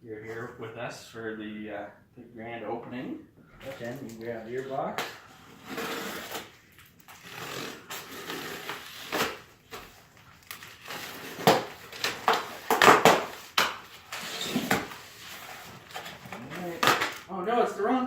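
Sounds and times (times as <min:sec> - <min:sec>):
cardboard tearing and rustling: 0:05.4 - 0:17.3.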